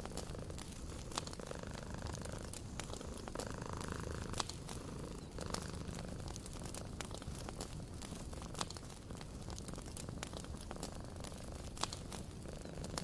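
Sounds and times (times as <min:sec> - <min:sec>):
cat purring: 0:00.0 - 0:13.0
wood fire crackling: 0:00.0 - 0:13.0
fire pops: 0:06.3 - 0:13.0.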